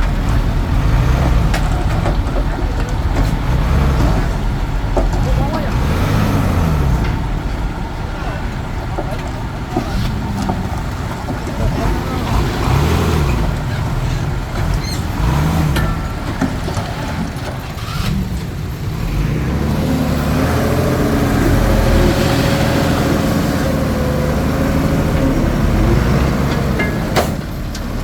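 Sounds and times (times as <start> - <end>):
bulldozer diesel engine working: 0.0 - 28.0.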